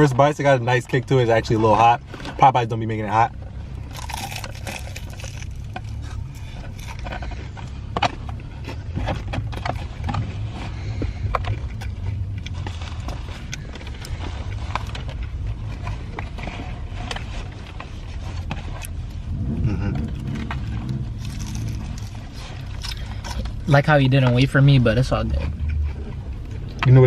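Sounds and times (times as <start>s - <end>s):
steady low rumble: 0.0s - 27.0s
food wrappers rustling: 3.7s - 7.4s, 21.1s - 23.7s
crunching bites: 3.7s - 8.3s, 19.9s - 23.6s.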